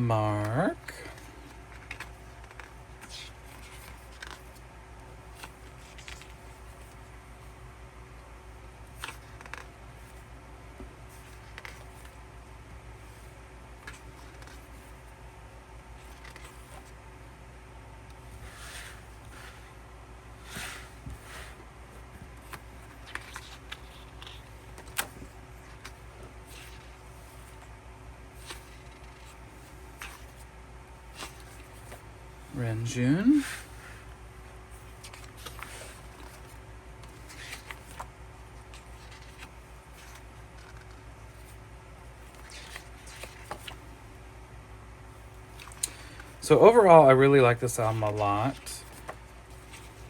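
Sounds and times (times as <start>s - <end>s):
cards handled and flipped: 0.4s - 7.6s, 8.8s - 12.2s, 16.0s - 17.0s, 22.2s - 27.7s, 28.3s - 32.1s, 34.8s - 44.0s, 45.3s - 46.4s, 47.9s - 50.0s
paper rustling: 0.4s - 7.6s, 8.5s - 10.3s, 11.0s - 12.3s, 13.0s - 15.2s, 16.0s - 17.0s, 20.4s - 32.1s, 32.8s - 44.0s, 47.6s - 50.0s.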